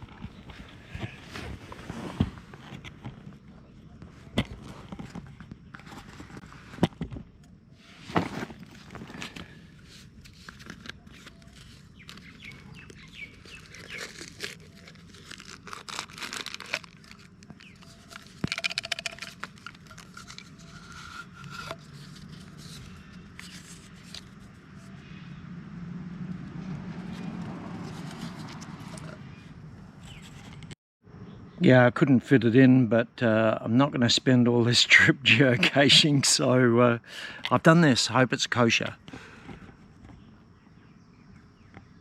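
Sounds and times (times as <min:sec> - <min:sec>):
rustling and crinkling: 0:00.0 - 0:25.0, 0:26.9 - 0:30.8.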